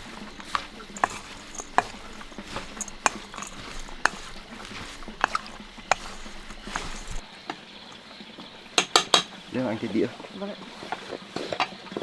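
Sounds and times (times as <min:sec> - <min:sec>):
dishes and utensils clinking: 0:00.0 - 0:07.3.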